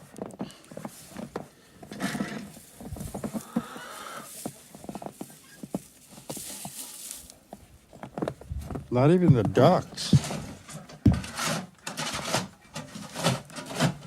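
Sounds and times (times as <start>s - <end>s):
footsteps crunching through snow: 0.7s - 10.6s.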